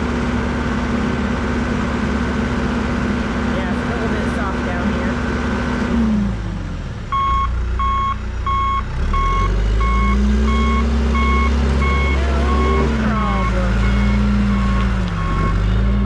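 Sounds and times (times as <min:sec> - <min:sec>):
diesel engine running: 0:00.0 - 0:16.0
reversing alarm beeping: 0:07.1 - 0:16.0.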